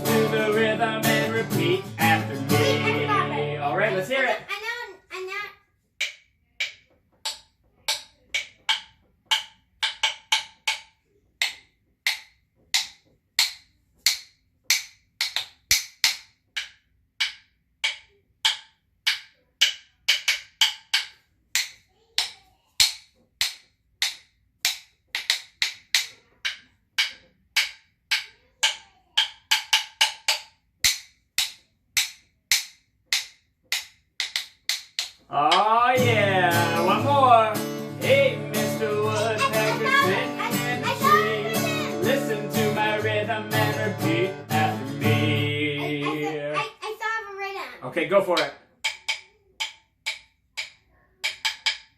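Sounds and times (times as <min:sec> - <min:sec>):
wooden rhythm sticks clicking: 0:00.0 - 0:51.9.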